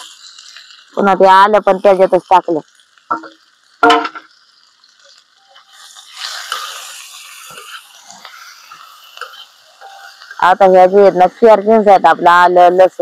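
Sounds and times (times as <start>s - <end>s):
vegetables sizzling in oil: 0.0s - 13.0s
spatula scraping: 5.5s - 10.5s.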